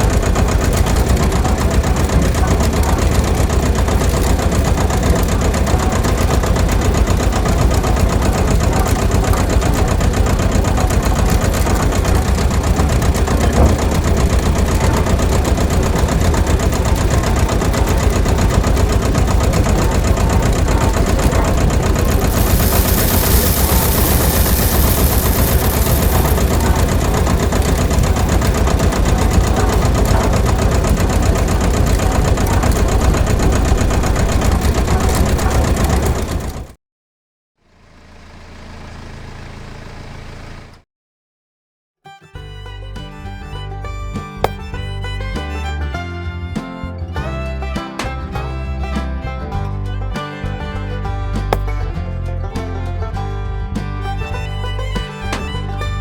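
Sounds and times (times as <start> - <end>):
small machine motor rattling: 0.0 - 36.7
hiss: 21.9 - 28.4.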